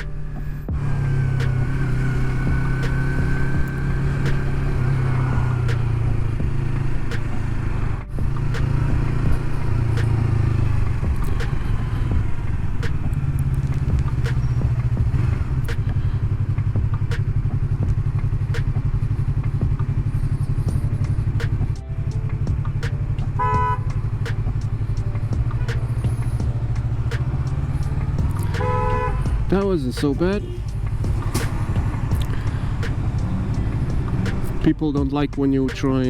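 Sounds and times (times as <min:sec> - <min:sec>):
motorcycle engine running low: 0:00.0 - 0:36.0.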